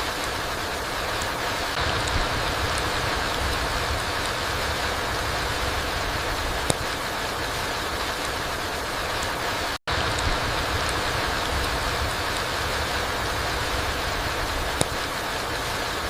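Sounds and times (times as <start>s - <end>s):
rain falling through trees: 0.0s - 16.0s
water drips ticking: 1.1s - 15.7s.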